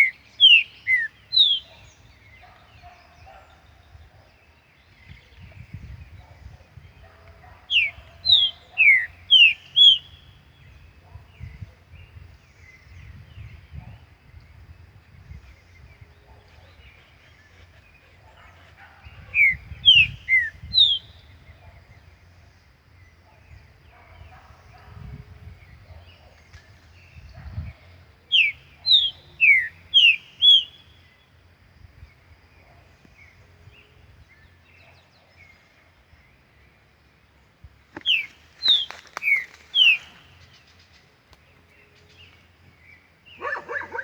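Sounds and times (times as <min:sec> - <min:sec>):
bird whistling song: 0:00.0 - 0:02.3, 0:07.7 - 0:10.4, 0:19.2 - 0:21.4, 0:28.3 - 0:31.0, 0:38.0 - 0:40.5.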